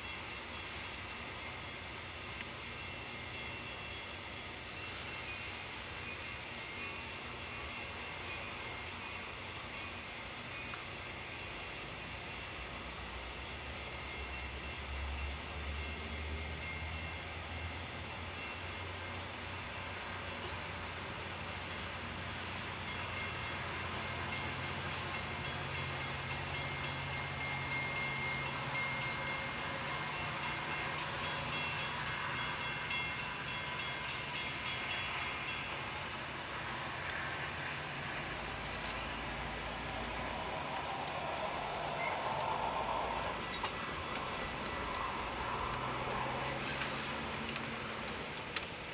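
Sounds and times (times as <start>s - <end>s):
crossing warning bell ringing: 0.0s - 48.9s
train rumbling over rails: 0.0s - 48.9s.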